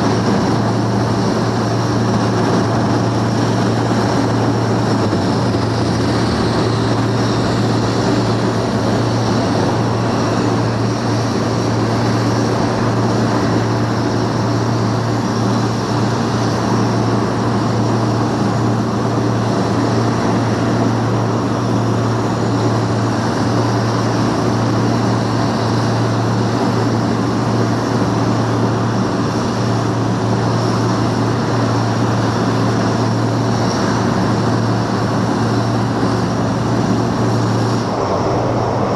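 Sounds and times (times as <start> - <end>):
propeller aircraft engines droning: 0.0 - 38.9.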